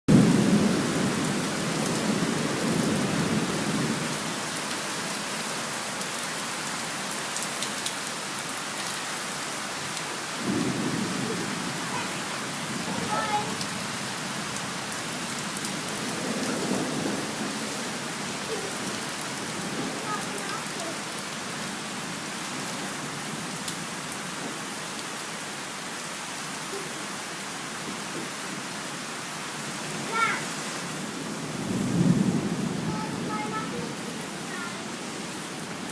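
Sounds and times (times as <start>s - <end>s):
thunder rumbling: 0.1s - 4.2s, 10.4s - 21.1s, 30.9s - 35.9s
heavy rain pattering: 0.1s - 35.9s.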